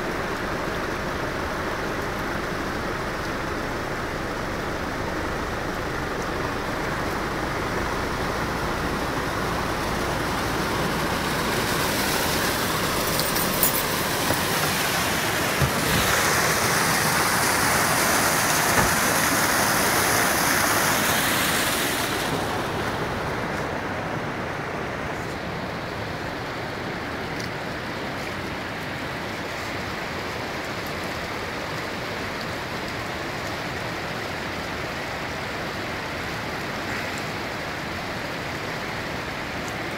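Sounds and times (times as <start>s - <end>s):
vehicle splashing through water: 0.0s - 39.9s
water rushing: 0.0s - 39.9s.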